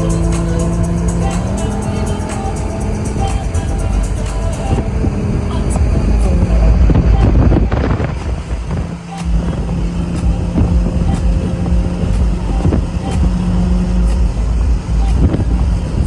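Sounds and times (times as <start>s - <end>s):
loud car exhaust: 0.0s - 16.0s.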